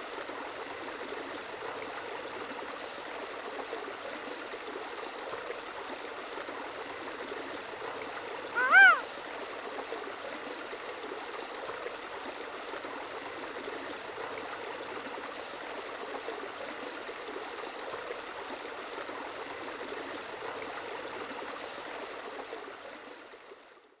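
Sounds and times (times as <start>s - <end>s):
running water: 6.7s - 9.1s.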